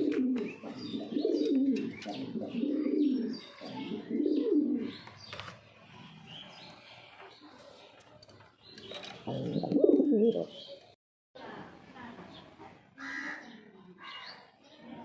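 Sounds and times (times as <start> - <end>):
pigeon cooing: 0.0 - 5.0, 9.1 - 10.6.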